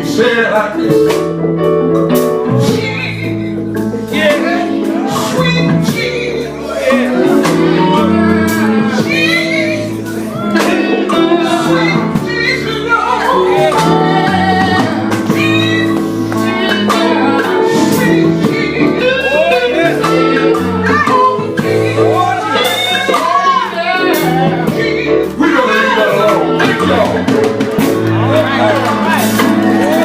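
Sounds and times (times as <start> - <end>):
bass notes: 0.0 - 30.0
gospel group singing: 0.0 - 30.0
drum hits: 26.1 - 30.0.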